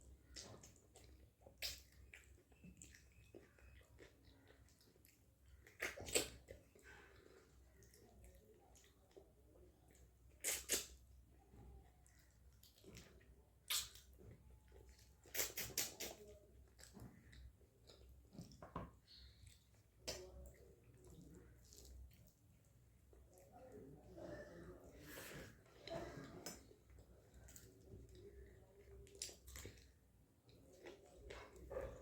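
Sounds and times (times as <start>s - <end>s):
person chewing food: 0.0s - 24.1s, 24.7s - 32.0s
sharp mouth clicks: 10.4s - 10.9s, 13.7s - 14.0s, 15.3s - 16.2s.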